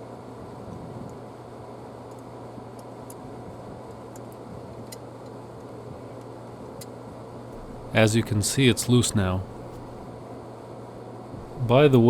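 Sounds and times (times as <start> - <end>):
steady low hum: 7.5 - 10.1, 11.3 - 12.0.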